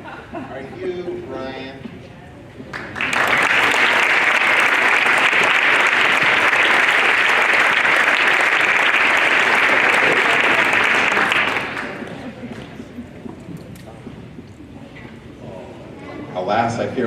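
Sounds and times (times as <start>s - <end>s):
audience clapping: 2.7s - 12.8s.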